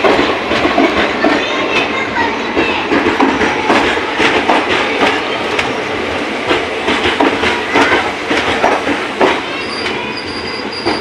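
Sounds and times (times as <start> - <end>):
train rumble: 0.0 - 11.0
train wheels clacking over rail joints: 0.0 - 11.0
wheels squealing on rail: 7.5 - 11.0.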